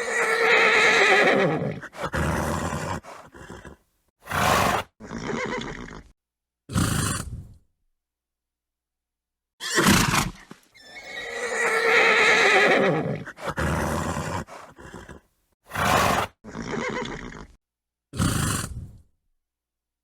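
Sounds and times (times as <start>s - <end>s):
horse neighing: 0.0s - 6.1s, 9.6s - 17.6s.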